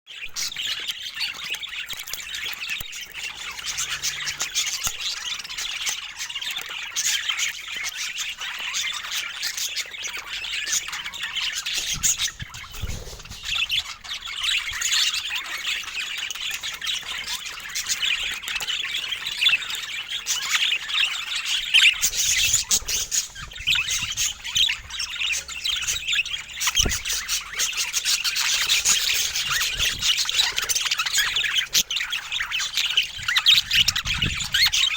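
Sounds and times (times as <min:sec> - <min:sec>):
budgerigars chattering: 0:00.2 - 0:34.9.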